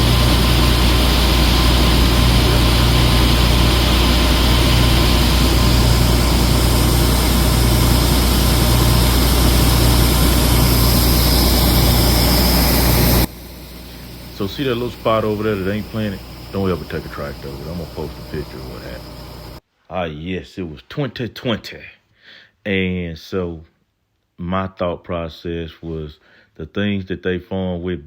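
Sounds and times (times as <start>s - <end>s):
heavy diesel machinery drone: 0.0s - 19.6s.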